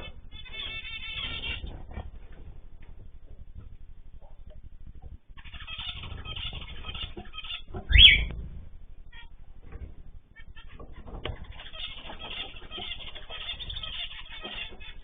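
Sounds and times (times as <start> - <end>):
small birds chirping: 0.0 - 15.0
loud rising bird call: 7.9 - 8.3.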